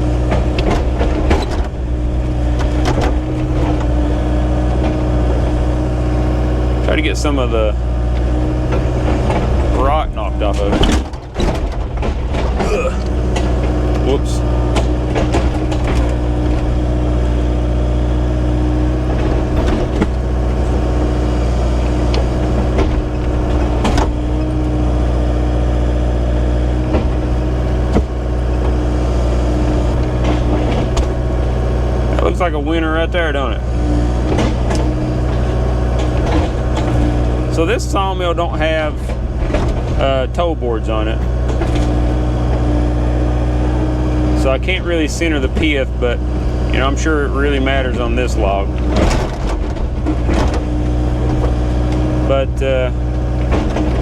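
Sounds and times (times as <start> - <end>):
knocks and clunks: 0.0 - 54.0
small engine idling: 0.0 - 54.0
sharp knocks: 10.5 - 32.3.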